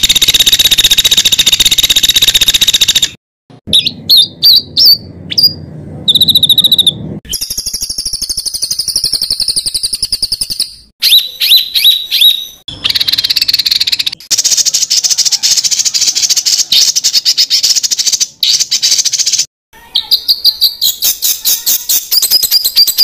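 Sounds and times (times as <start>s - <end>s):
songbird buzzy trill: 0.0s - 23.0s
songbird whistled notes: 3.7s - 14.1s, 20.2s - 23.0s.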